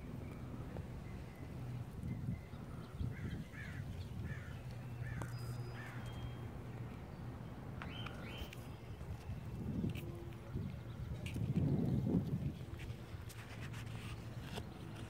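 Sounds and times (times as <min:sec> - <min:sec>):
bird calling: 0:07.8 - 0:08.7.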